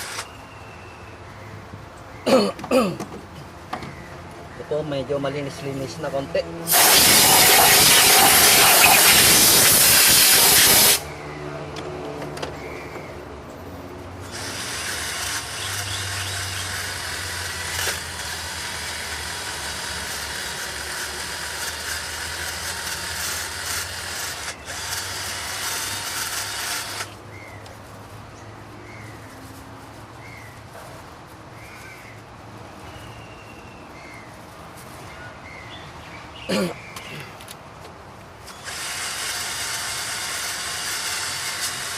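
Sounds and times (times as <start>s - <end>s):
power tool whirring: 0.0s - 0.3s, 6.7s - 11.1s, 14.2s - 27.2s, 38.4s - 41.9s
loud hiss: 6.7s - 11.1s.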